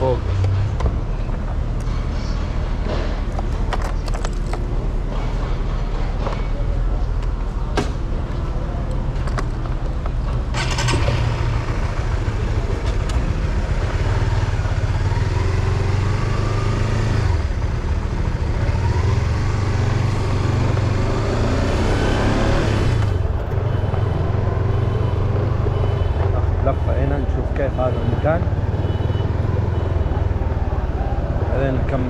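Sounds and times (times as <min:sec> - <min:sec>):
road noise: 0:00.0 - 0:32.0
vehicle engine revving: 0:10.5 - 0:32.0.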